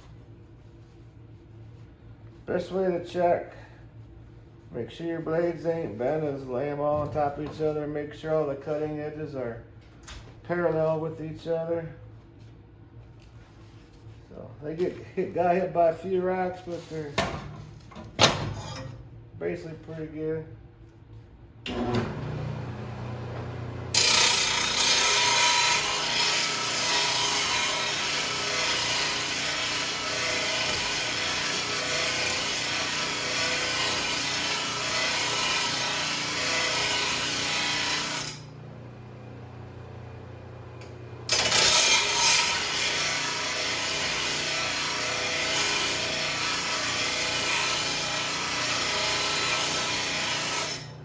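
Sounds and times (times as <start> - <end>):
loud grinding against blade edge: 23.9 - 38.5, 41.3 - 51.0.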